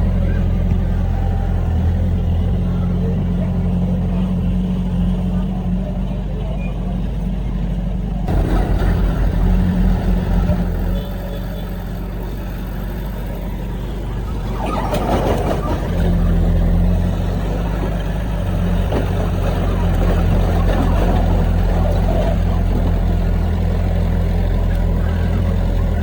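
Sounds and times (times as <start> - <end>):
heavy diesel engine running: 0.0 - 26.0
burst of rough noise: 8.3 - 26.0.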